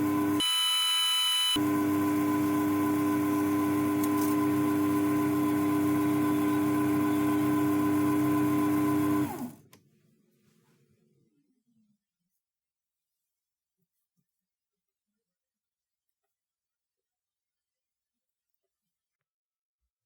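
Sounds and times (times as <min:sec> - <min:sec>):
electric lathe motor humming: 0:01.6 - 0:09.6.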